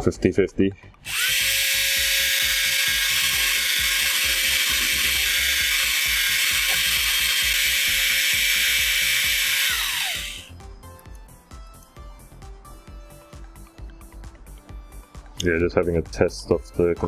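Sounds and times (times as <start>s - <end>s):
hand drill motor whine: 1.0s - 10.5s.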